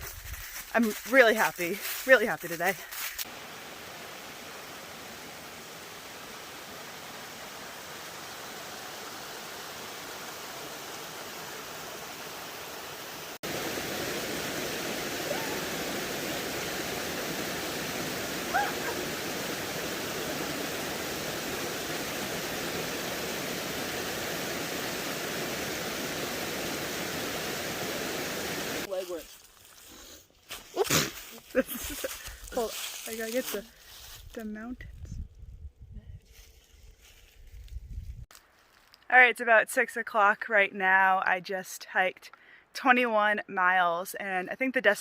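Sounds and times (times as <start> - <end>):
waterfall rushing: 3.2 - 28.9.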